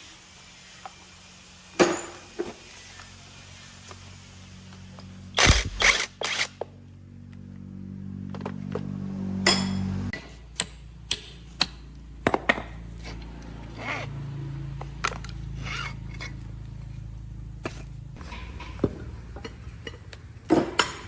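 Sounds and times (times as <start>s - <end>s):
low motor hum: 4.6s - 21.0s.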